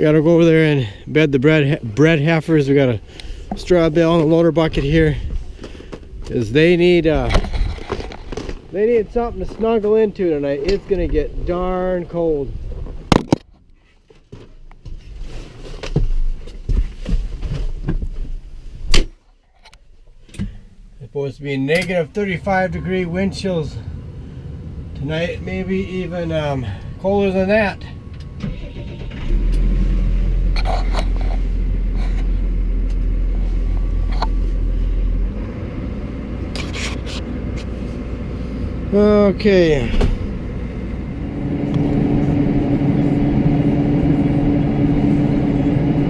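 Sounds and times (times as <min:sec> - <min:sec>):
tractor engine rumble in cab: 0:20.0 - 0:46.0.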